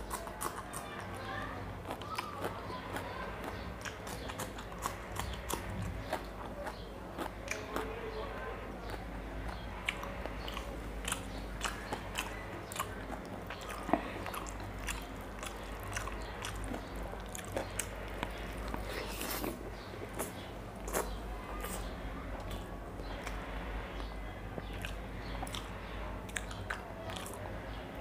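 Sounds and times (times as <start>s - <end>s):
chewing and mouth sounds: 0.0s - 8.1s, 8.8s - 28.0s
low steady hum: 0.0s - 28.0s.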